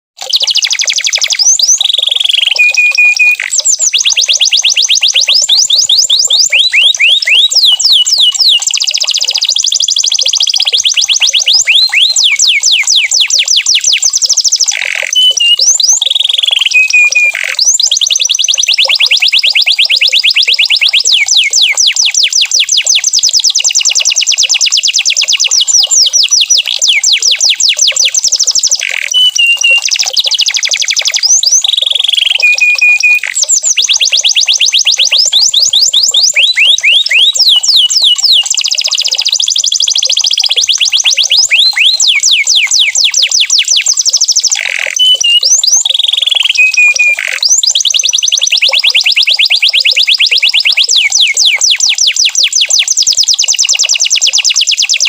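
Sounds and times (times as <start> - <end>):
canary singing trills: 0.2 - 55.0.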